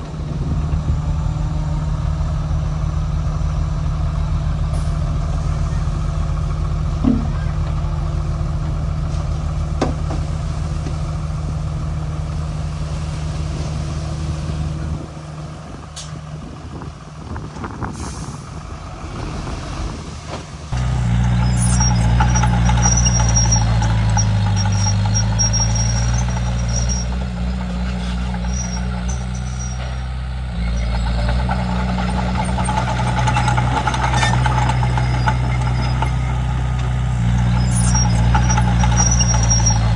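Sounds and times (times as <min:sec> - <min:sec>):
bulldozer diesel engine running: 0:00.0 - 0:39.9
faint high squeal: 0:21.3 - 0:31.3, 0:37.4 - 0:39.9.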